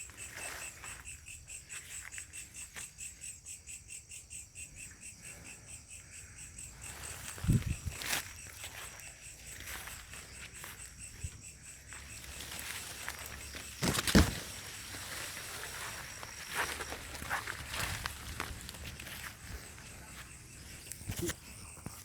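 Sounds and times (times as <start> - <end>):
crickets chirping: 0.0 - 22.0
footsteps rustling through vegetation: 6.8 - 21.4.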